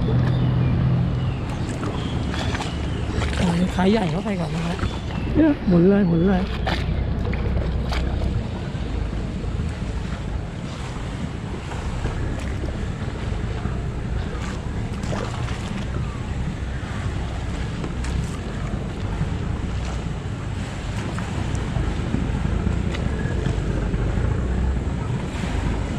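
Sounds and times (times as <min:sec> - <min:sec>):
water washing: 0:00.0 - 0:25.9
wind buffeting microphone: 0:00.0 - 0:25.9
short knocks or splashes: 0:01.4 - 0:05.6, 0:13.5 - 0:16.0.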